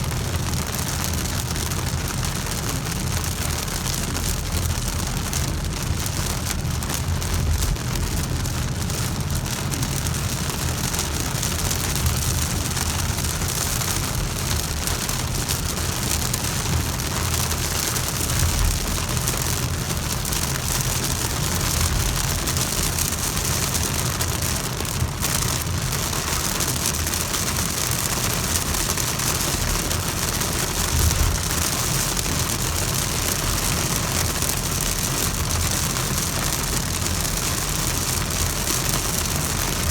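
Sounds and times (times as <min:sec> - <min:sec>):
heavy rain falling: 0:00.0 - 0:39.9
low rumble: 0:30.8 - 0:31.8.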